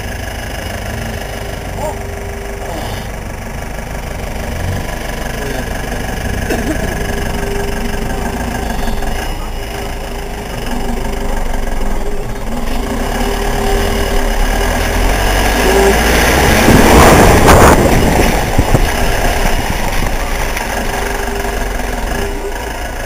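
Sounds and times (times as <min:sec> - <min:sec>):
motorcycle engine running: 0:00.0 - 0:23.0
rush of noise: 0:12.6 - 0:22.6.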